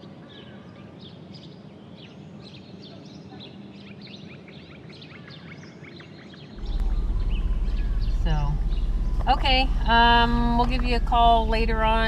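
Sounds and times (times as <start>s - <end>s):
small birds chirping: 0.0s - 12.0s
low steady hum: 6.6s - 12.0s.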